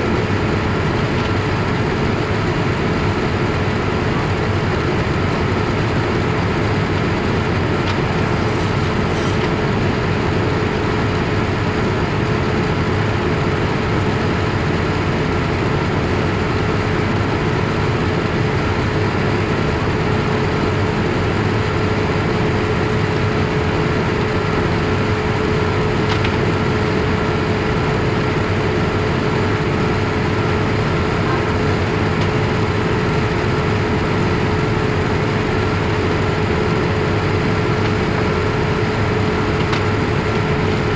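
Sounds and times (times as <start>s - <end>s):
airplane cabin engine noise: 0.0s - 40.9s.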